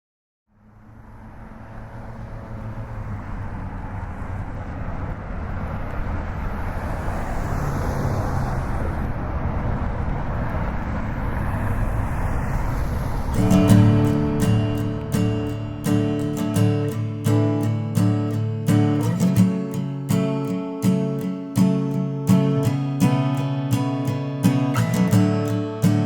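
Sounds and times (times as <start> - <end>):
steady rumbling with low hum: 8.2 - 17.2.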